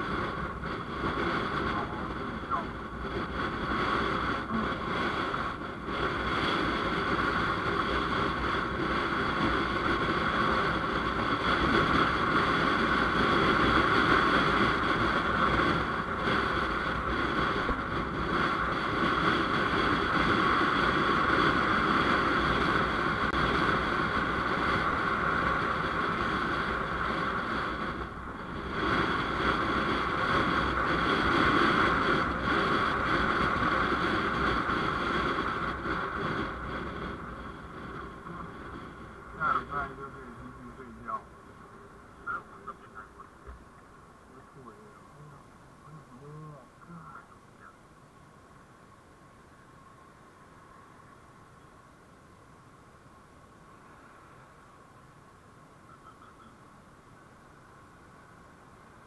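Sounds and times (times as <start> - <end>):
motorcycle engine running: 0.0 - 45.3
wind and road noise: 0.0 - 59.0.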